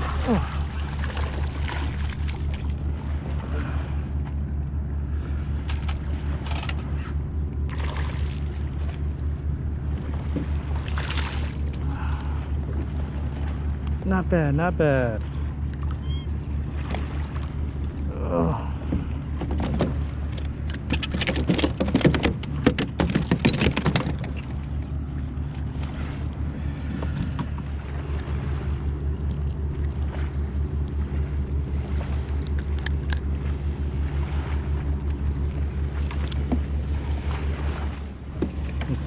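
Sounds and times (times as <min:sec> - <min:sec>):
low mechanical hum pulsing: 0:00.0 - 0:39.0
gear clattering and clicking: 0:19.5 - 0:24.6.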